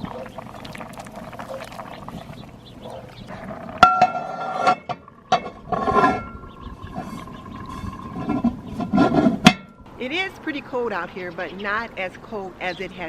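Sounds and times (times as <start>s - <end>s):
rustling and scraping: 2.9s - 9.6s
metallic clanks on cast iron pot: 3.8s - 9.9s.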